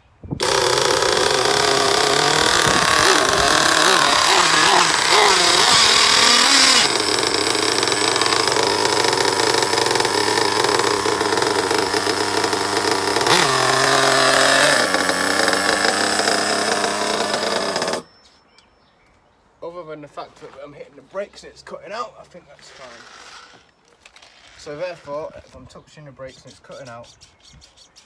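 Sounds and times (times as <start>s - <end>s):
nitro engine revving: 0.4s - 18.1s.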